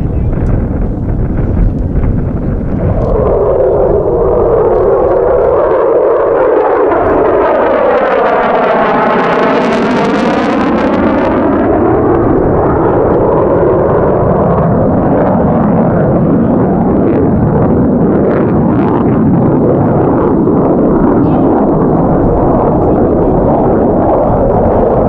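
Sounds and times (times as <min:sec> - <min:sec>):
jet engine roaring: 0:00.0 - 0:25.0.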